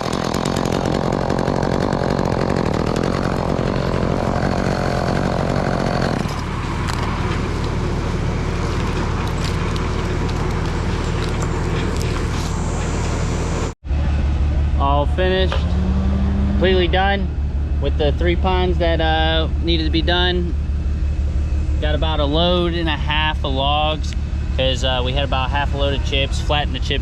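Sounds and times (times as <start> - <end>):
chainsaw revving: 0.0 - 12.6
machinery engine running steadily: 0.0 - 27.0.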